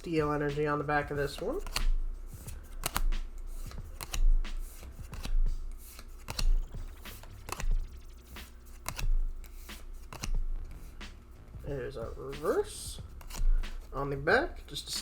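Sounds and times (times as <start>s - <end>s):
trading cards snapping: 1.2s - 10.4s, 12.4s - 13.9s.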